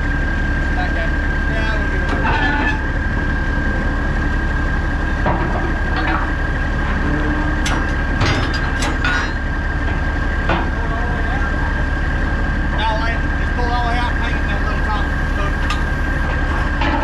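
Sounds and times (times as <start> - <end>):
diesel engine idling: 0.0 - 17.0
metal clanks and knocks: 2.0 - 3.3, 5.1 - 10.9, 15.5 - 17.0
high whine: 10.5 - 17.0.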